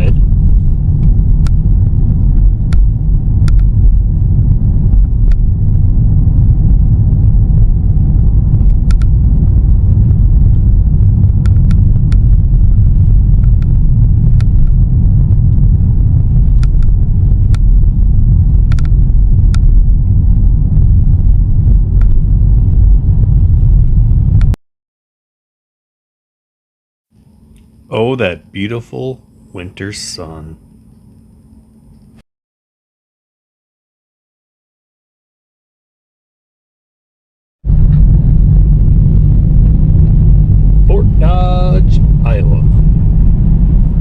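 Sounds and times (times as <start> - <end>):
car road rumble: 0.0 - 24.6, 37.7 - 44.0.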